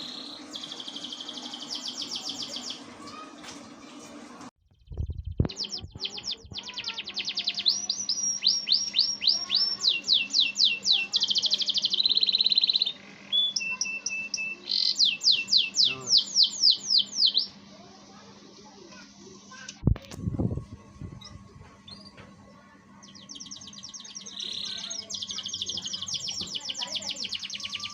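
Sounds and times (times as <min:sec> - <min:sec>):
canary singing trills: 0:00.0 - 0:02.9, 0:04.9 - 0:17.6, 0:22.9 - 0:27.9.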